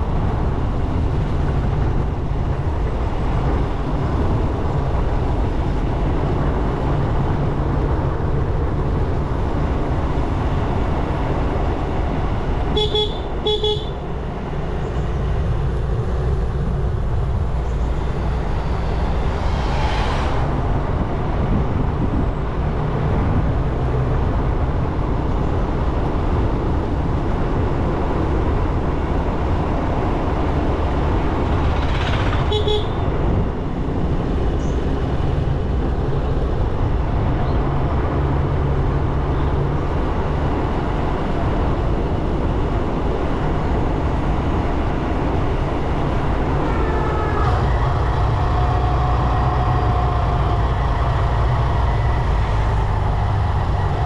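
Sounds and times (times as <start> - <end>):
wind and road noise: 0.0 - 54.0.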